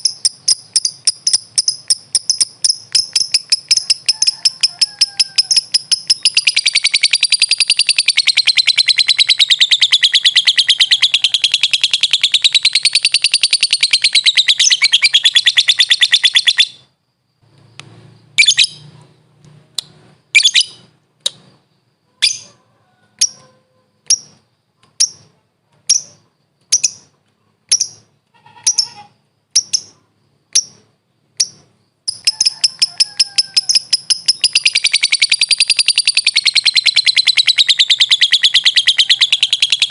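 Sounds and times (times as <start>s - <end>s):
lovebird fast chattering trill: 0.0s - 16.8s, 31.4s - 39.9s
sharp high bird chirps: 0.0s - 39.9s.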